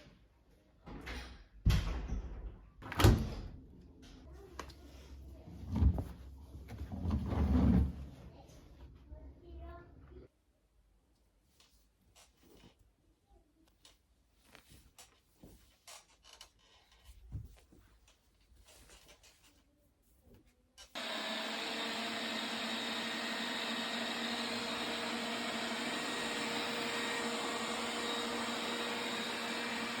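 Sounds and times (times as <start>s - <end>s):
appliance motor whooshing and humming: 21.0s - 30.0s.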